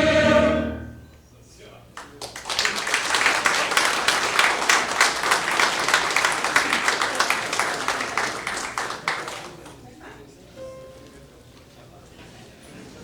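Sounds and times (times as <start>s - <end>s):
audience applauding: 2.0s - 9.8s.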